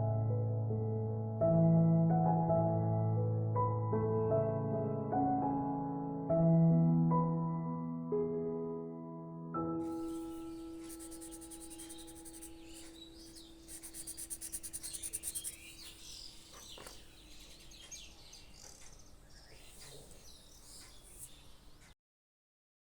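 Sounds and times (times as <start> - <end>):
fast insect-like trill: 10.0 - 16.2
birds chirping and singing: 11.8 - 21.8.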